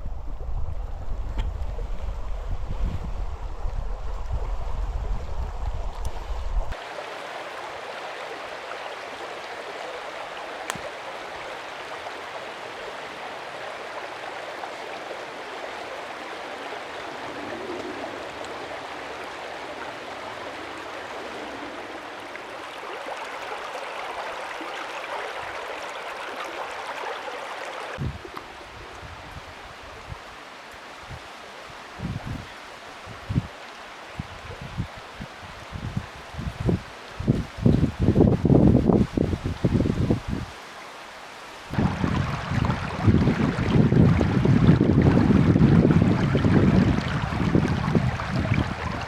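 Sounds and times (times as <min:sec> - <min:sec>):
wind buffeting microphone: 0:00.0 - 0:06.8, 0:28.0 - 0:30.3, 0:32.0 - 0:32.5, 0:33.1 - 0:33.5, 0:34.2 - 0:40.6, 0:41.7 - 0:49.0
mountain stream flowing: 0:00.4 - 0:49.0.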